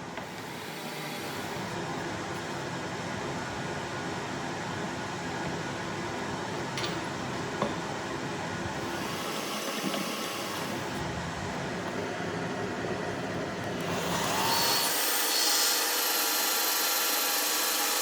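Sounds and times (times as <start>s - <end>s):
machine hiss and whir: 8.7s - 11.0s, 13.8s - 18.0s.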